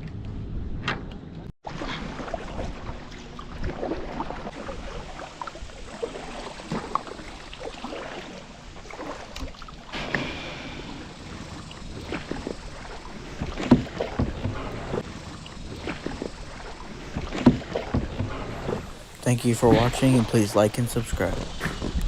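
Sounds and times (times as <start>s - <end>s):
knocks and splashes in boat: 1.6s - 22.0s
water lapping against kayak: 1.6s - 22.0s
wind on microphone: 18.4s - 22.0s.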